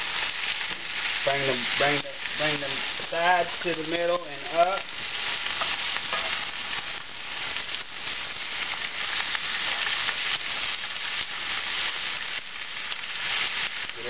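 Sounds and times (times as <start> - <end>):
cabbage sizzling in a skillet: 0.0 - 14.0
spatula scraping a pan: 2.3 - 11.9.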